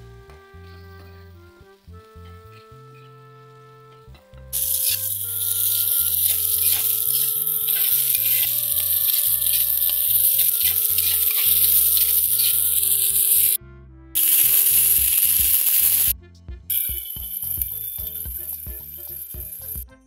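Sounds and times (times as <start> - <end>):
background music: 0.0 - 20.0
metal spatula scraping: 4.6 - 13.6
vegetables sizzling in oil: 4.6 - 13.6, 14.2 - 16.1, 16.7 - 19.8.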